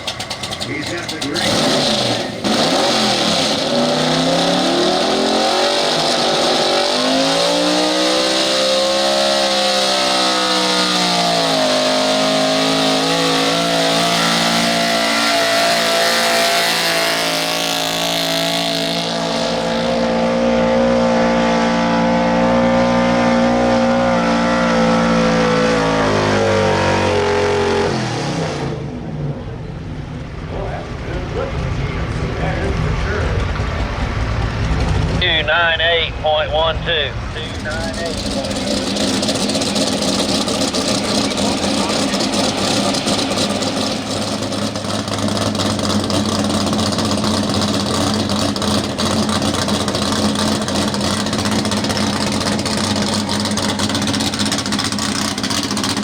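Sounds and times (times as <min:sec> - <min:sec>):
truck engine revving at full throttle: 0:00.0 - 0:56.0.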